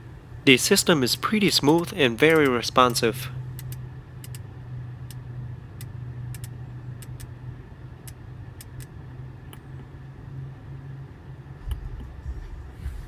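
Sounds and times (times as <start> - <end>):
low car cabin hum: 0.0 - 13.0
rotary controller clicking: 5.8 - 7.3.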